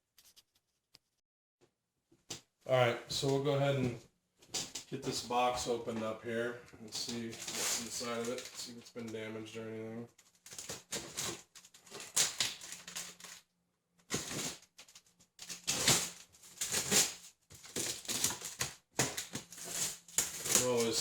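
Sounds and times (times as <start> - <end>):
cardboard box rustling and crinkling: 7.3 - 8.6, 10.2 - 13.4, 14.1 - 21.0.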